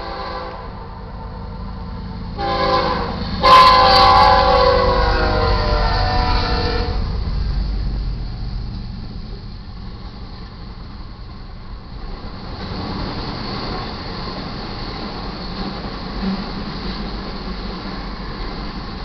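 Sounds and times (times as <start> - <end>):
locomotive horn: 0.0 - 0.9, 2.3 - 7.2
freight train rumbling past: 0.0 - 19.0.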